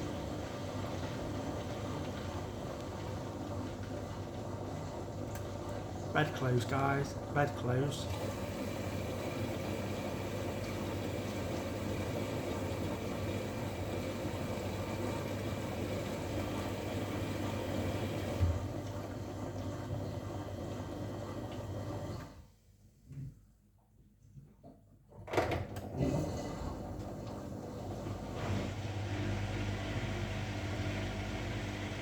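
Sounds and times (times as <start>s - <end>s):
washing machine humming: 0.0s - 22.6s, 24.6s - 32.0s.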